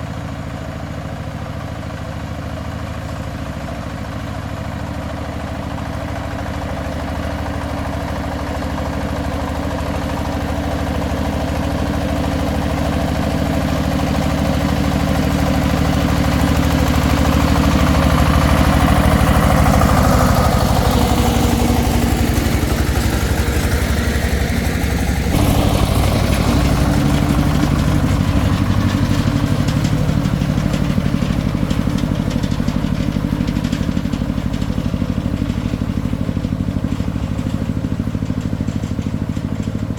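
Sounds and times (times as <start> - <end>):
farm vehicle engine running: 0.0 - 39.9.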